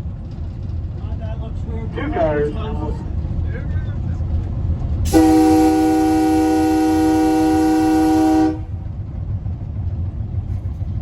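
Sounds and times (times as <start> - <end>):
train running rumble: 0.0 - 11.0
train air horn blast: 5.1 - 8.8.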